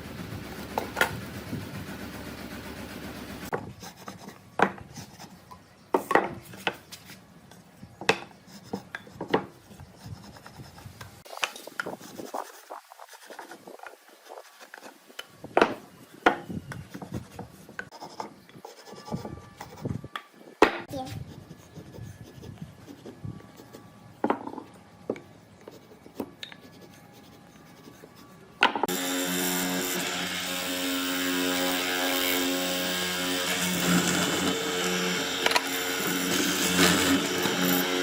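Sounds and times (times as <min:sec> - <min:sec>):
steady machine noise: 0:00.0 - 0:03.6, 0:28.9 - 0:38.0.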